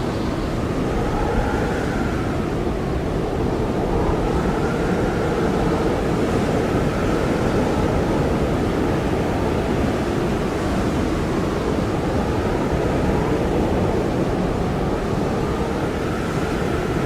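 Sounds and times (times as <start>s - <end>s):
blizzard wind howling: 0.0s - 17.0s.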